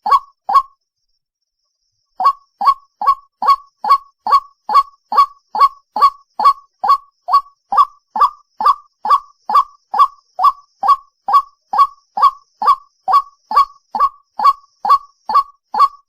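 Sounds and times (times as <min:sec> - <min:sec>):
waterhen calling: 0:00.0 - 0:00.7, 0:02.2 - 0:16.0.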